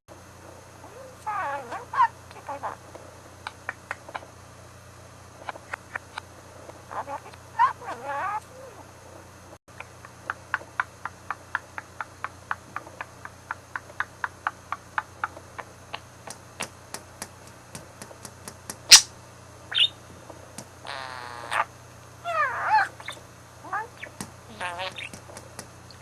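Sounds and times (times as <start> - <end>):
budgie chirp: 19.7 - 20.0, 22.3 - 25.2.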